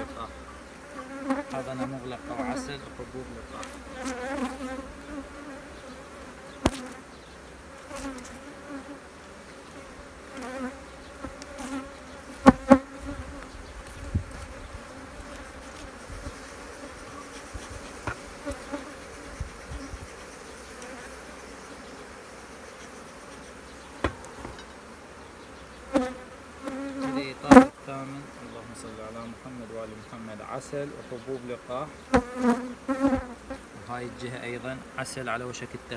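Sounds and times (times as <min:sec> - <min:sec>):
honeybees buzzing: 0:00.0 - 0:35.9
sharp knocks: 0:24.0 - 0:24.7.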